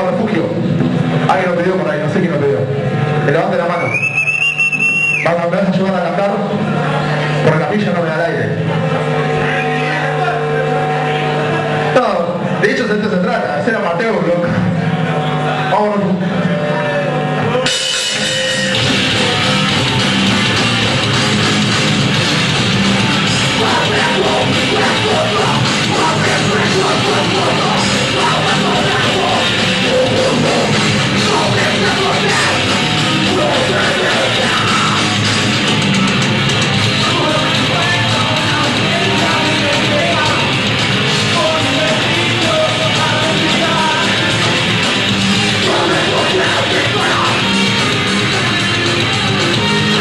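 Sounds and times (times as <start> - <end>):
heavy metal band playing live: 0.0 - 3.7, 5.4 - 50.0.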